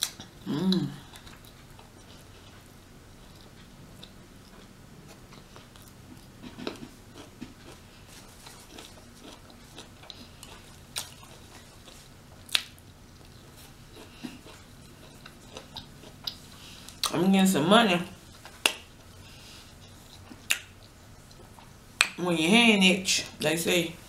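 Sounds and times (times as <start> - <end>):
person chewing and biting: 0.0 - 17.1, 18.2 - 21.8
wet mouth clicks and smacks: 20.4 - 20.8.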